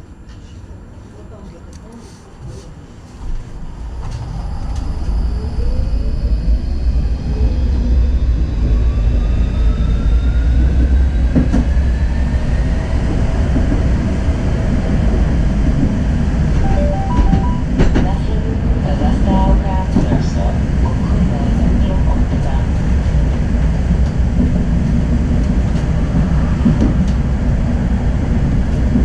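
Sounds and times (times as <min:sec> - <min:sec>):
wheels rumbling on track: 0:00.1 - 0:29.0
tram motor whine rising: 0:02.9 - 0:19.7.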